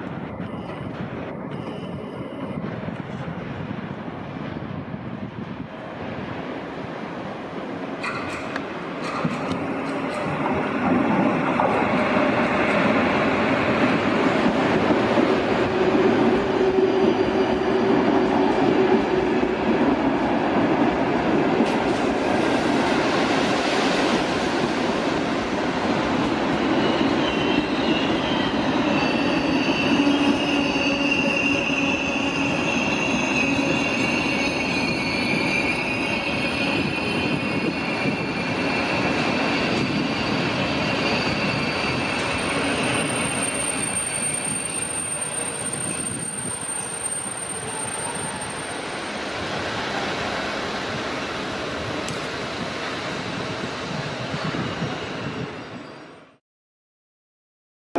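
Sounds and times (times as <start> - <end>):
train moving: 0.0 - 56.4
wheel squeal: 26.7 - 49.0.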